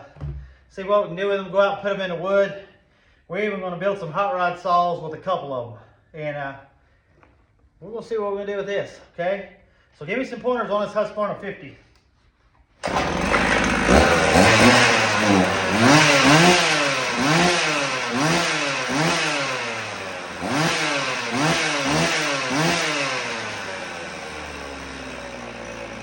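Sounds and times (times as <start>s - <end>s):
chainsaw revving and idling: 12.8s - 26.0s.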